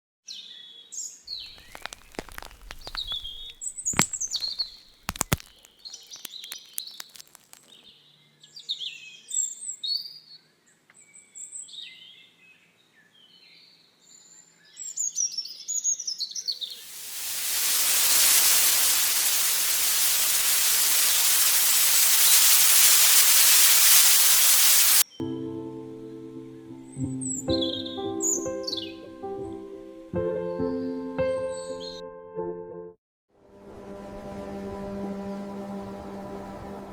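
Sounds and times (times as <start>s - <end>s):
small birds chirping: 1.4s - 7.8s
loud steady hiss: 16.8s - 25.1s.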